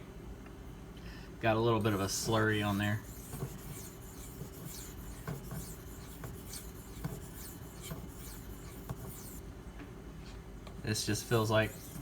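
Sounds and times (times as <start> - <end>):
knife scraping on sharpening stone: 2.2 - 9.4, 11.3 - 12.0.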